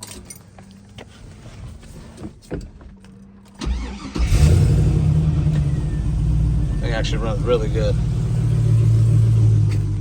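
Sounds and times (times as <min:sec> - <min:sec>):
car engine cranking and idling: 0:02.2 - 0:10.0.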